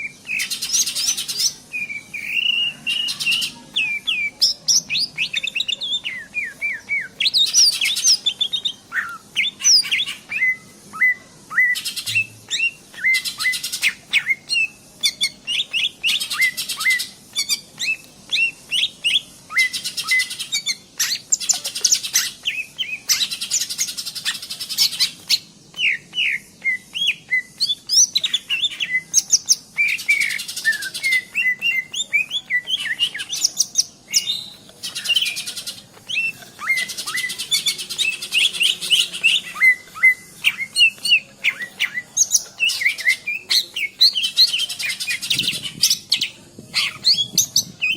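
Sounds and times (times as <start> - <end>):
bird whistled song: 0.0 - 47.9.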